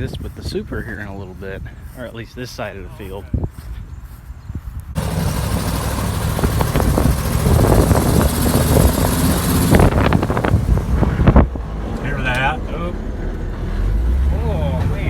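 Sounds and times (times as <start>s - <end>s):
farm machine engine running: 5.0s - 10.9s.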